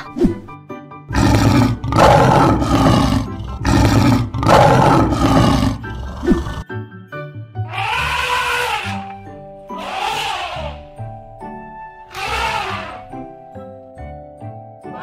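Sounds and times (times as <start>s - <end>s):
light background music: 0.0s - 15.0s
lion roaring: 1.1s - 6.6s.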